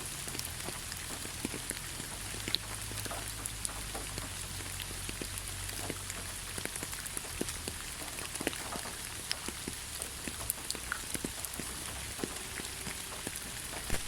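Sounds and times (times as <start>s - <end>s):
rain hissing on leaves: 0.0s - 14.0s
raindrops ticking: 0.0s - 14.0s.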